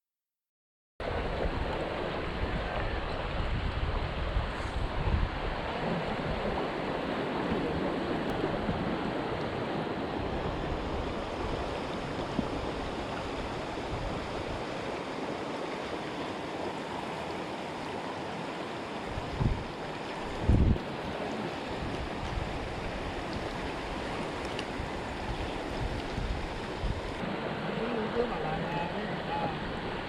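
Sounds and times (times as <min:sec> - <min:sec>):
wind rumble on microphone: 0:01.0 - 0:15.0, 0:19.0 - 0:27.3
creek rapids rushing: 0:01.0 - 0:30.0.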